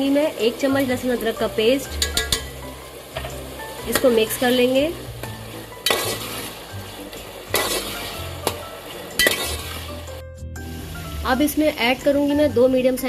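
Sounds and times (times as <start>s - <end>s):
meat sizzling in oil: 0.0s - 13.0s
spoon scraping and knocking on pot: 1.9s - 4.2s, 5.2s - 6.4s, 7.5s - 8.6s, 9.2s - 9.8s.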